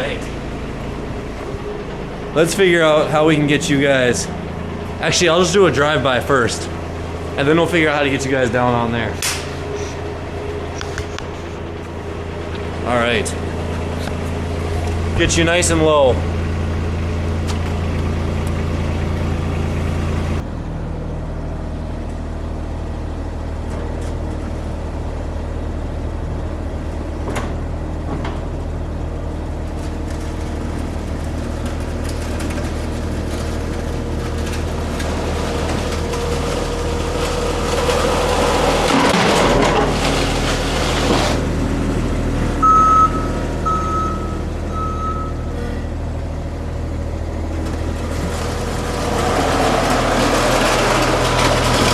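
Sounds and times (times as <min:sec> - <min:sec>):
loader engine running: 0:00.0 - 0:51.9
short electronic beeps: 0:42.6 - 0:45.8.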